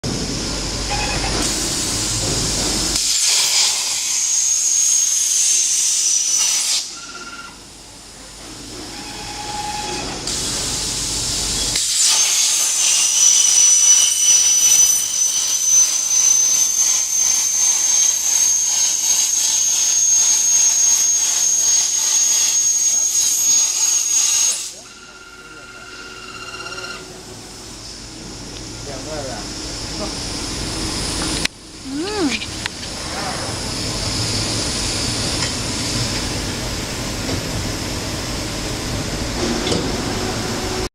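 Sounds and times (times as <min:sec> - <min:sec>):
plasma torch cutting metal: 0:02.9 - 0:07.0, 0:10.3 - 0:24.9.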